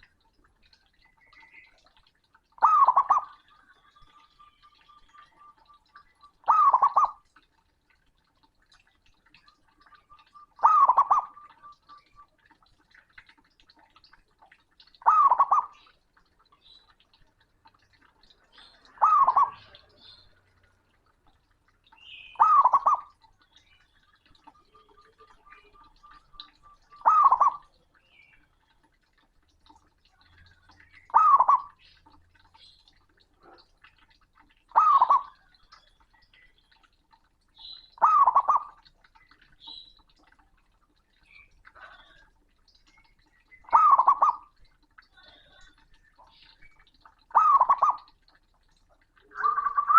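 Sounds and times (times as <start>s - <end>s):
dove cooing loudly: 10.6s - 11.8s, 26.4s - 27.7s, 43.7s - 44.4s.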